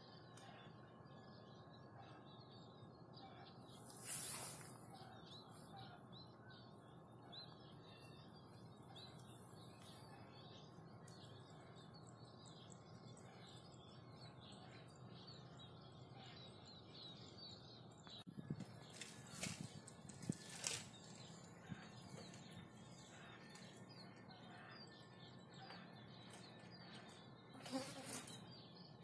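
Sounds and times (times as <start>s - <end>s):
low background hum: 0.0s - 29.0s
small birds chirping: 0.0s - 29.0s
brief hiss: 3.9s - 4.9s.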